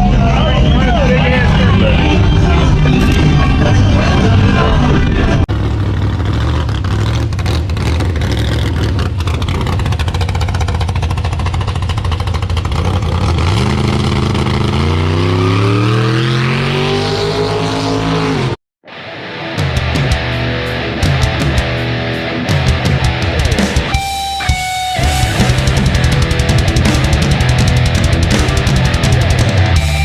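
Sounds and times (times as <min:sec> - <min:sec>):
car engine revving: 0:00.0 - 0:18.6, 0:25.0 - 0:30.0.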